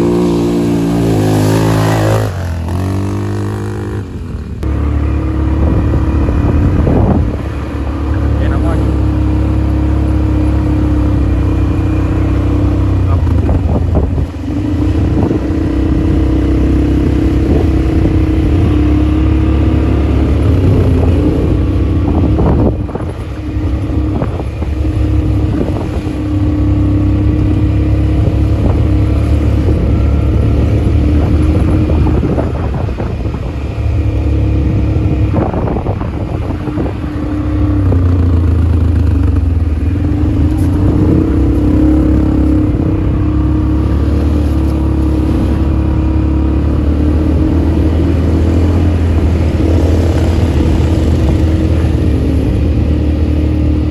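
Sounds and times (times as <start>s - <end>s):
atv engine running: 0.0s - 53.9s.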